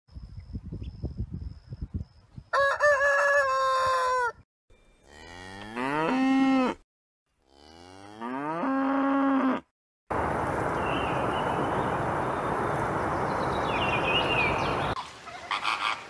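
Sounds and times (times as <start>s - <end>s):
rooster crowing: 2.5s - 4.4s
cow mooing: 5.0s - 6.8s, 7.4s - 9.7s.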